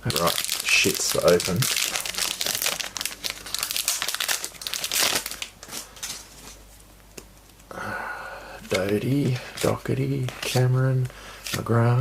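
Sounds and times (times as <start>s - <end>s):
wrapper crinkling: 0.0s - 6.6s.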